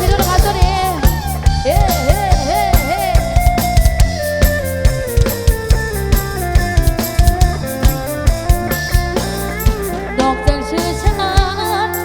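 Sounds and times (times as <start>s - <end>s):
drum kit beat: 0.0s - 12.0s
sustained lead melody: 0.0s - 12.0s.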